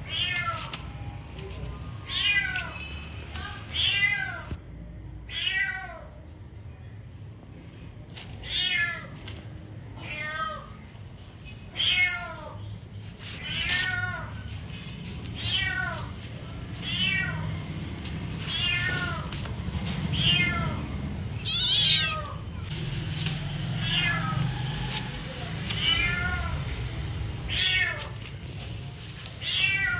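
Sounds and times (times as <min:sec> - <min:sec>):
cat meowing: 0:15.3 - 0:17.7, 0:18.4 - 0:19.3, 0:20.1 - 0:22.7.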